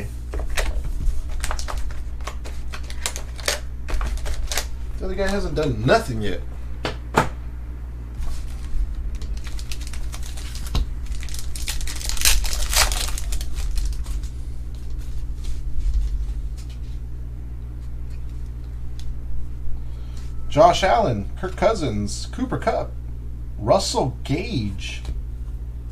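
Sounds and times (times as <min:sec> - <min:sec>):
low electrical hum: 0:00.0 - 0:25.9
trading cards crinkling and rustling: 0:00.3 - 0:05.8, 0:08.2 - 0:17.0.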